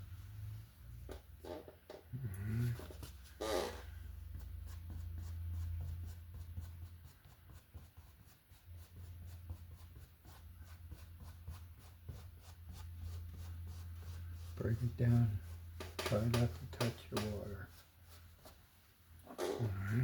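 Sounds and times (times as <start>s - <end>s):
paintbrush scrubbing canvas: 4.1s - 19.0s.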